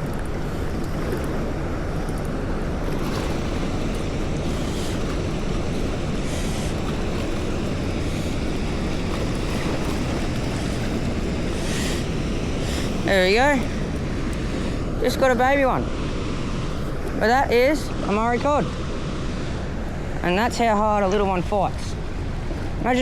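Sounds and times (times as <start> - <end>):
river water rushing: 0.0 - 17.2.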